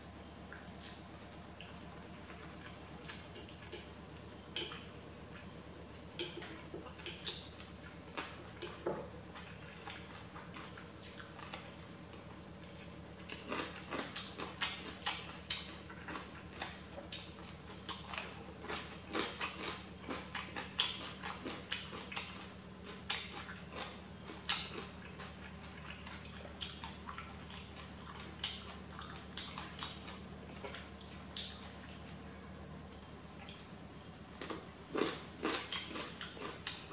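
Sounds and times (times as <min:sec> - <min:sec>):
wet chewing clicks and smacks: 0:24.5 - 0:31.6.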